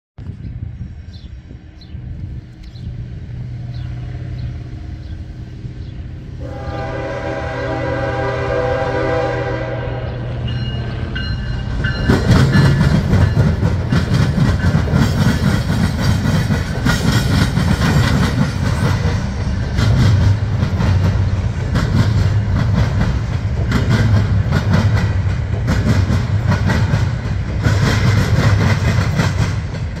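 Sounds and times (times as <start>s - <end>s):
diesel locomotive engine hum: 0.2s - 30.0s
train horn: 6.4s - 10.8s
train wheels clattering: 10.4s - 30.0s.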